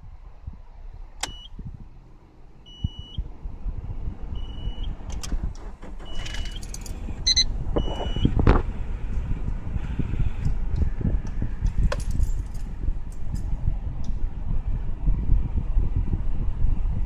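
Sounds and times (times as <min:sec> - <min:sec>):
car engine rumble: 0:00.0 - 0:17.0
handling clicks and knocks: 0:05.1 - 0:07.1, 0:10.8 - 0:13.5
short high electronic beeps: 0:07.2 - 0:08.3.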